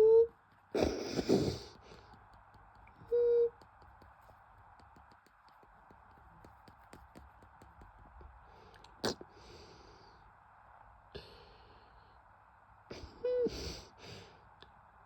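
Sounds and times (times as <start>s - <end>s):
faint running hum: 0.0s - 15.0s
steady ticking clicks: 1.8s - 9.0s.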